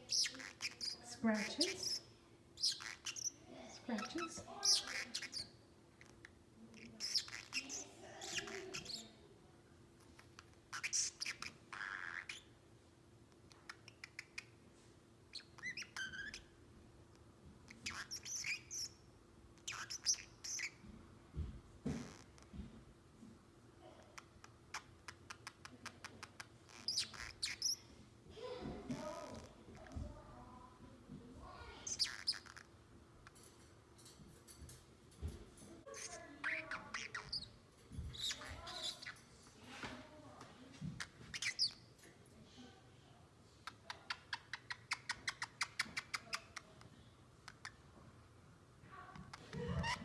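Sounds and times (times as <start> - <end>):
parrot high sweeping chirps: 0.0 - 9.1, 10.2 - 12.5, 15.3 - 16.5, 17.7 - 19.0, 19.6 - 20.8, 24.7 - 27.9, 31.8 - 33.4, 35.9 - 39.3, 41.0 - 41.9, 43.6 - 46.6.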